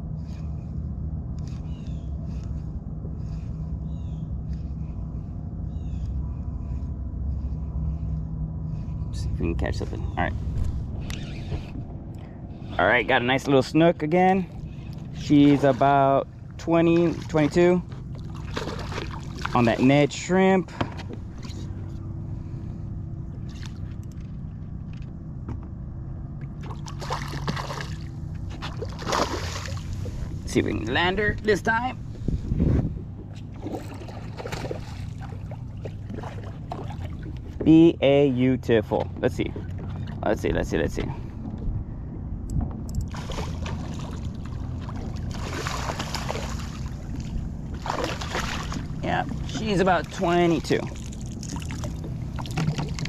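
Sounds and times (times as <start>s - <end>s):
water rumbling: 0.0s - 53.0s
wind: 0.0s - 53.0s
water splashing and dripping: 43.1s - 49.0s, 50.8s - 53.0s.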